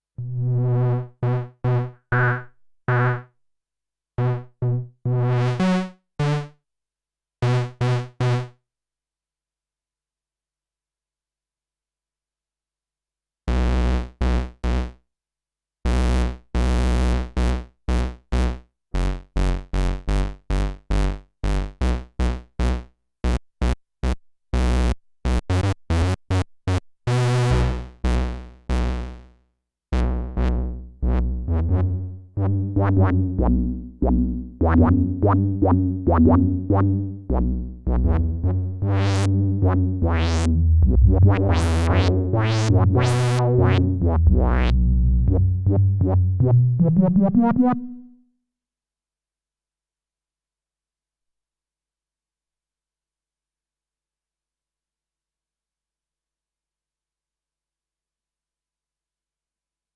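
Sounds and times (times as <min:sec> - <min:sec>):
synthesizer bass notes: 0:30.5 - 0:48.2.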